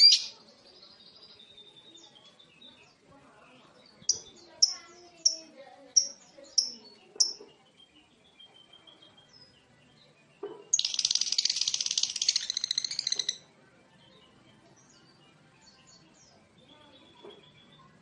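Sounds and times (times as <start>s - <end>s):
lovebird chattering trill: 0.0s - 0.3s, 4.1s - 7.4s, 10.7s - 13.4s
lovebird chirps: 0.0s - 0.4s, 4.0s - 7.6s, 10.7s - 13.4s.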